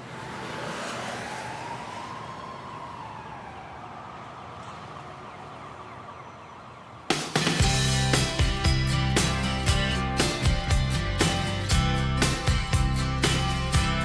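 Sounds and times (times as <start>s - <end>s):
siren-like wail: 0.0s - 7.1s
band music: 7.1s - 14.0s.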